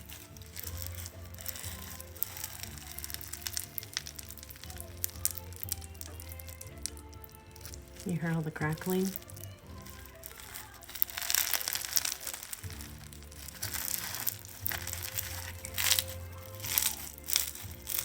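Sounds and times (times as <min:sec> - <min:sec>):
crunchy slime crackling: 0:00.0 - 0:18.0.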